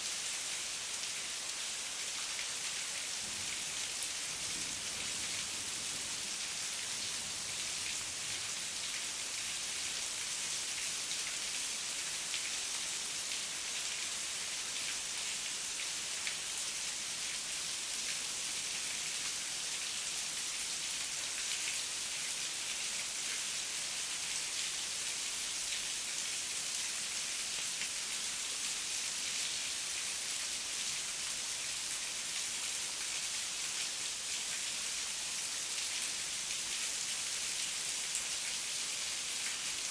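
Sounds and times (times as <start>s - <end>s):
heavy rain falling: 3.1s - 9.1s.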